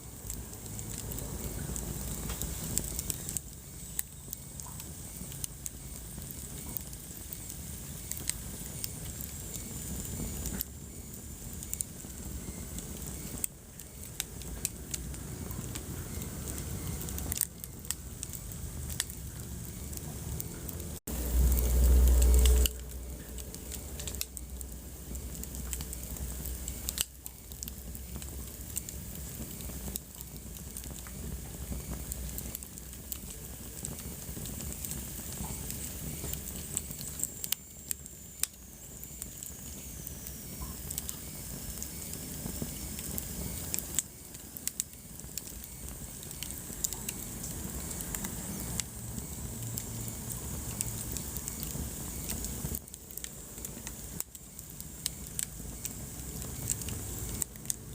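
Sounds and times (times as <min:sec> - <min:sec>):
flames rumbling and hissing: 0:00.0 - 0:57.9
wood fire crackling and popping: 0:00.0 - 0:57.9
high hissing whistle: 0:15.0 - 0:29.0, 0:35.3 - 0:52.8.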